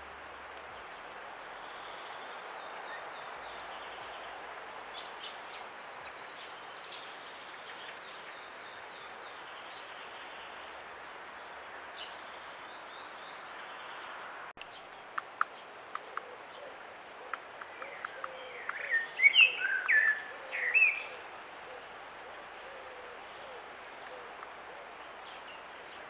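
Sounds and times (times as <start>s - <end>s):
steady background hiss: 0.0s - 26.0s
wild birds calling: 15.4s - 26.0s.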